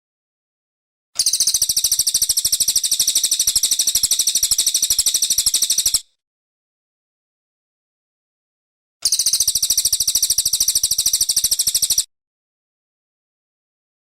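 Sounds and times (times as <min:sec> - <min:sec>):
bird high-pitched trill: 0:01.2 - 0:06.1, 0:09.0 - 0:12.1.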